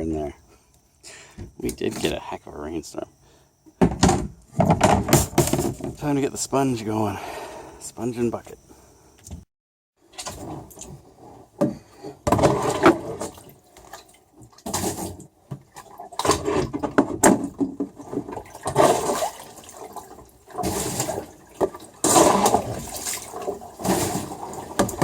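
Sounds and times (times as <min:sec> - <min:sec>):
water splashing and trickling: 0:12.3 - 0:25.0.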